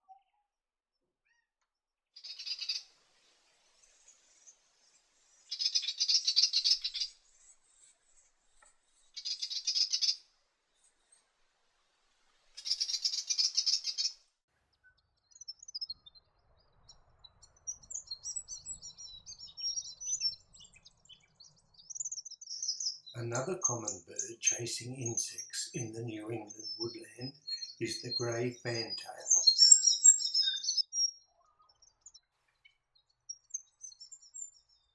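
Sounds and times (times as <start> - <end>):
high bird twittering: 9.2 - 10.2, 12.6 - 14.1, 22.0 - 31.2.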